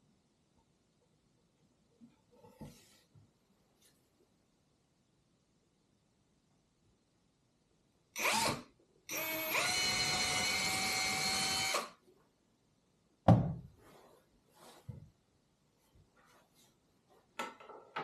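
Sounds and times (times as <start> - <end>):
small power tool motor running: 8.2 - 11.9.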